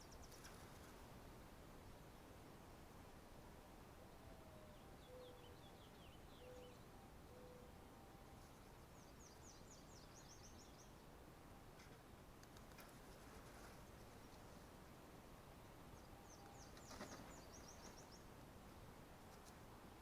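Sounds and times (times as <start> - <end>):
faint steady hiss: 0.0 - 20.0
small bird chirping: 16.0 - 18.3.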